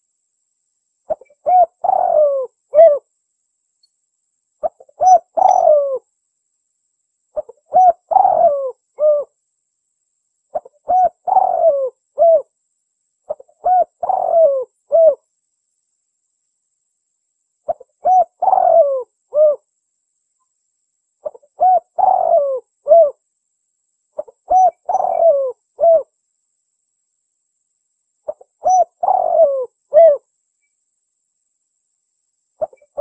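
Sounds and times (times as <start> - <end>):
dove cooing: 1.1 - 3.0, 4.6 - 6.0, 7.4 - 9.4, 10.5 - 12.5, 13.3 - 15.2, 17.7 - 19.7, 21.2 - 23.2, 24.2 - 26.1, 28.3 - 30.2, 32.6 - 33.0.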